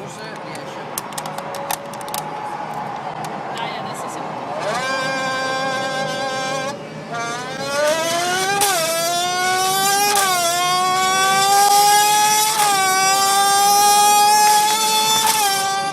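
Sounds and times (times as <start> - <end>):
imitated race car engine whine: 0.0 - 15.9.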